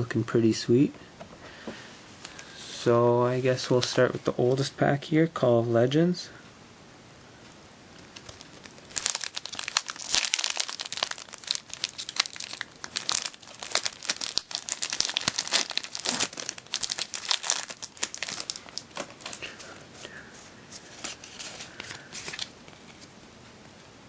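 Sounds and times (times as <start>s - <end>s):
foil wrapper tearing and crinkling: 8.0s - 19.6s.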